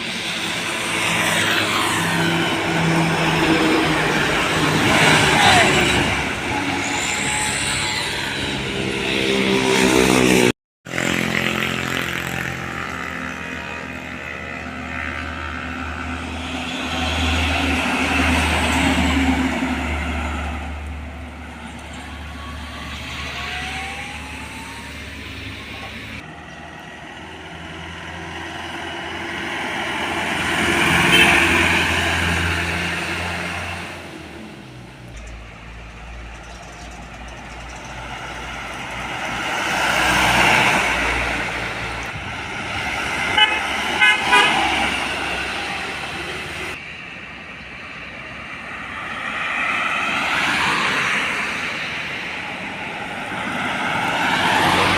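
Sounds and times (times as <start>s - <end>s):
trucks and buses passing: 0.0s - 54.9s
vehicle horn tooting: 31.0s - 31.8s, 43.3s - 44.8s.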